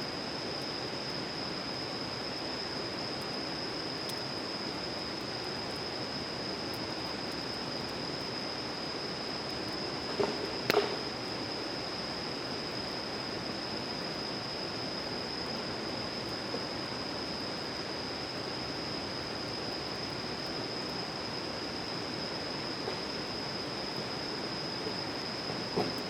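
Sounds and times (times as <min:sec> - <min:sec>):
faint ticks: 0:04.0 - 0:04.2.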